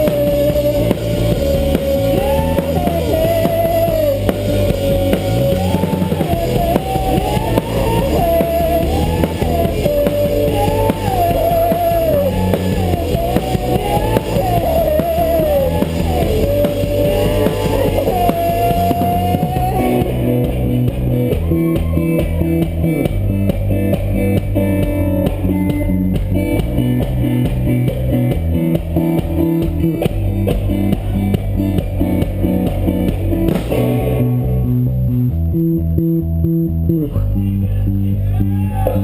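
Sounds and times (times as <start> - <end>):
live rock band playing: 0.0 - 37.1.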